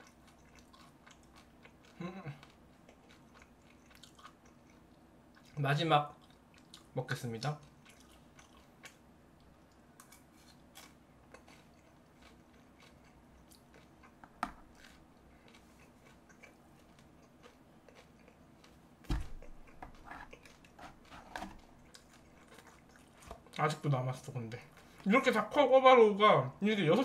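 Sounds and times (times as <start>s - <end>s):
chewing crispy fried pork: 0.0s - 25.1s
dull thump: 19.0s - 19.4s.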